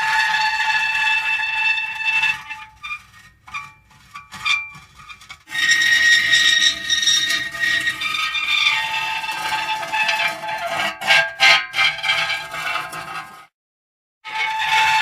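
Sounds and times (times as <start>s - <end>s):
metal creaking: 2.4s - 13.3s.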